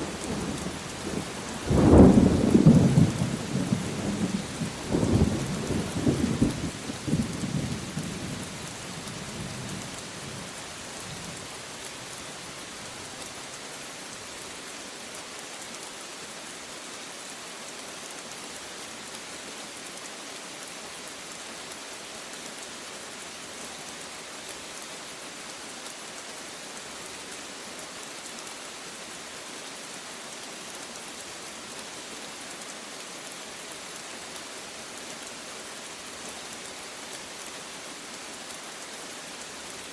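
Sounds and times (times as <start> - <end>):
heavy rain falling: 0.0 - 39.9
thunder rumbling: 1.6 - 7.8.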